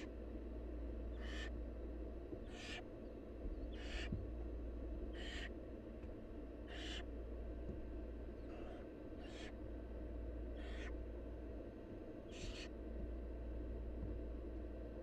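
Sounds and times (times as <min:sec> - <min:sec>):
steady low hum: 0:00.0 - 0:15.0
owl nestlings hissing calls: 0:01.1 - 0:01.6, 0:02.4 - 0:02.9, 0:03.7 - 0:04.1, 0:05.1 - 0:05.6, 0:06.6 - 0:07.1, 0:08.5 - 0:09.6, 0:10.6 - 0:11.0, 0:12.3 - 0:12.7.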